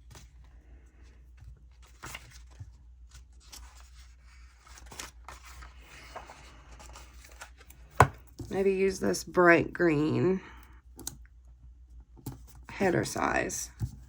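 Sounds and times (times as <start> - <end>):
paper sheets rustling: 0.0 - 9.0.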